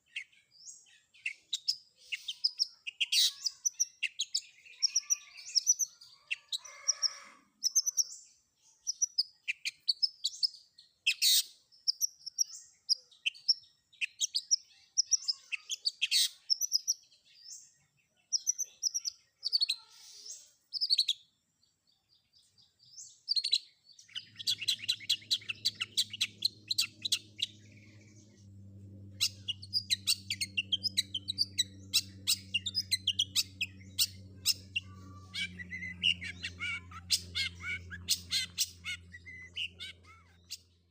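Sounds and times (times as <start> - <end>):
bird singing chirps and trills: 0.0 - 40.9
low steady hum: 24.0 - 40.9.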